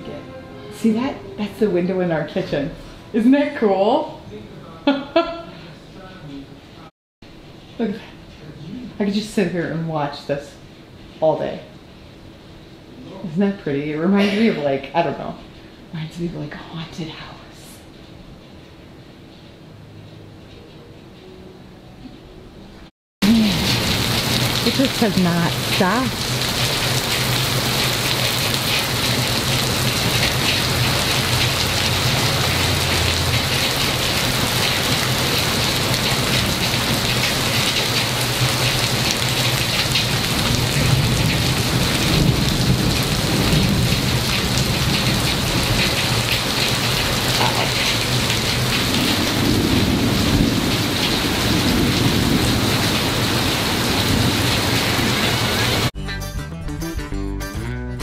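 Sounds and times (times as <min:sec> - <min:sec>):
heavy rain pouring: 0:23.2 - 0:55.9
thunder rumbling: 0:23.2 - 0:55.9.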